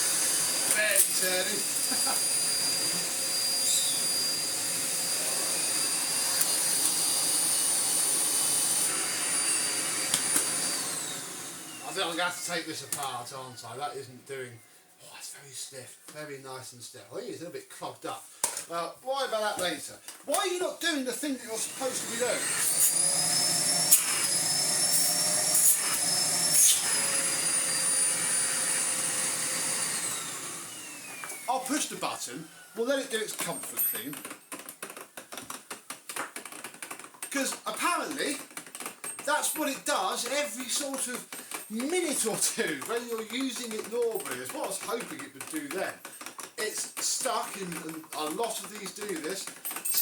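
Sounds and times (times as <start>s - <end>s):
vacuum cleaner running: 0.0s - 13.1s, 21.4s - 33.5s.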